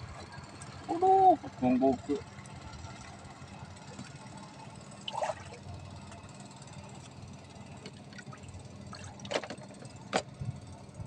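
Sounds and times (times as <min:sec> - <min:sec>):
steady low hum: 0:00.0 - 0:11.0
water splashing: 0:05.1 - 0:05.6.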